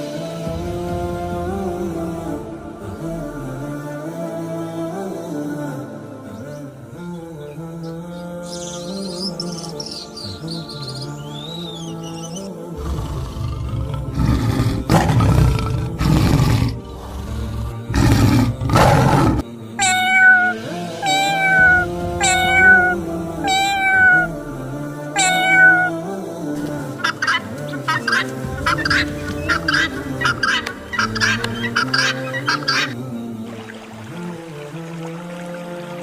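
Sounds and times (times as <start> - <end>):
background music: 0.0 - 36.0
short chattering calls: 19.8 - 24.3, 26.9 - 33.0
cat meowing: 19.8 - 24.4, 25.2 - 26.1.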